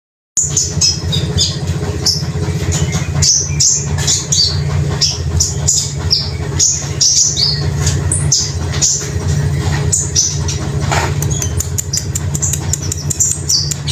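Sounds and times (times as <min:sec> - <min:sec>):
songbird chirping and trilling: 0:00.4 - 0:13.9
steady low hum: 0:00.4 - 0:13.9.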